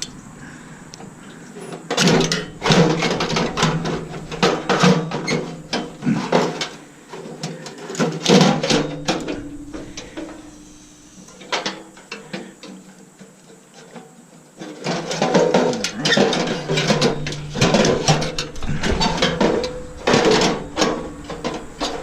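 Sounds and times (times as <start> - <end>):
hand tools clicking and rattling on metal: 0.0 - 22.0.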